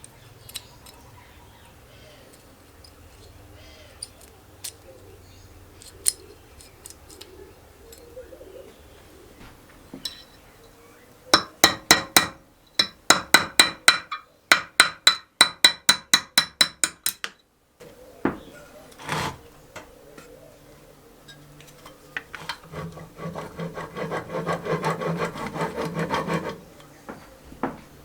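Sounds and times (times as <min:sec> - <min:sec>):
hammer striking metal: 0:11.4 - 0:17.2.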